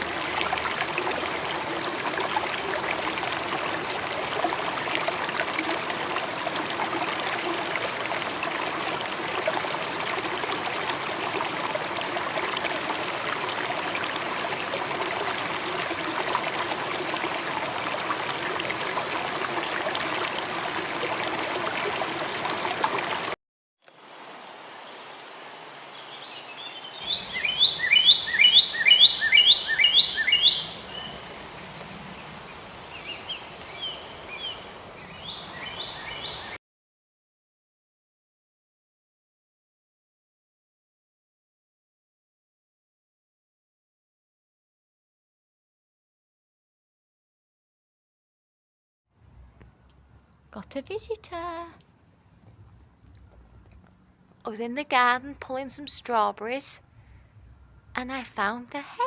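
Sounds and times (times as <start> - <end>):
songbird singing: 24.8 - 36.6, 49.5 - 59.0.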